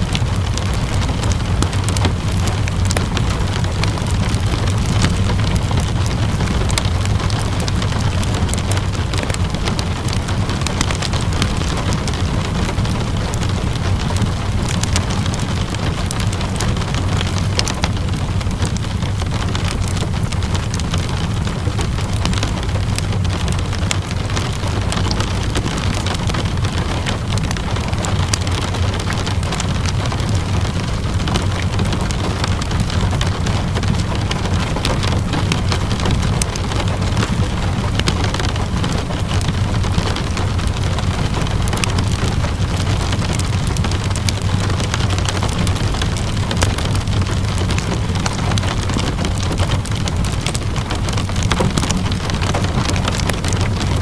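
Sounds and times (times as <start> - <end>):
steady rainfall: 0.0 - 54.0
wood fire crackling: 0.0 - 54.0.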